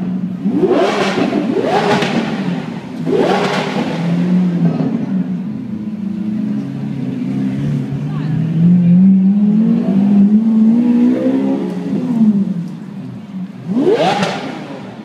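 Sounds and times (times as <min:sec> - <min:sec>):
car engine revving and idling: 0:00.0 - 0:15.0.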